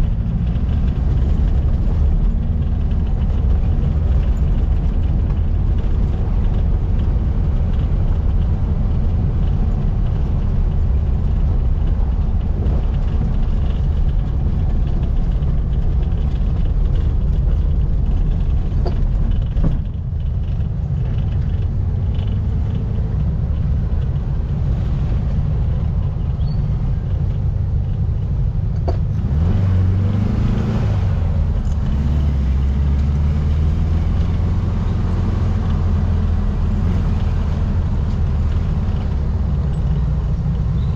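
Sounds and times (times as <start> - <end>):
car engine running under load: 0.0 - 40.9.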